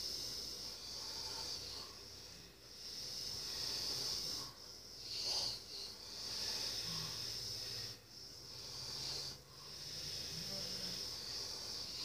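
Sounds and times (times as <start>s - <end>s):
person breathing noisily in sleep: 0.0s - 12.0s.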